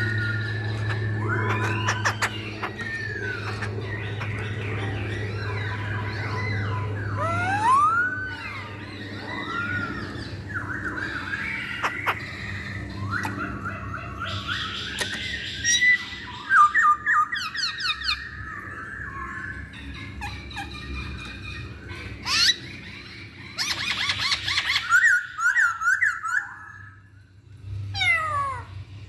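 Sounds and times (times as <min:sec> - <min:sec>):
harsh raspy bird notes: 0:00.0 - 0:16.5
bird singing whistled notes: 0:05.4 - 0:11.9.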